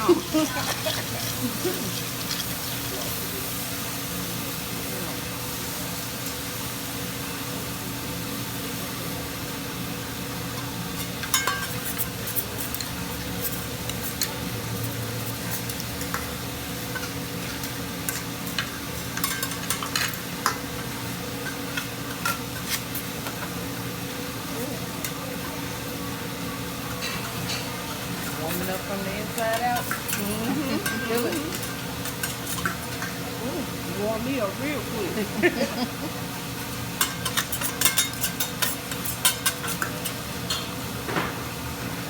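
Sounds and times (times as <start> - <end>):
griddle sizzling: 0.0 - 42.0
metal utensils clinking: 10.6 - 23.5, 27.0 - 40.8.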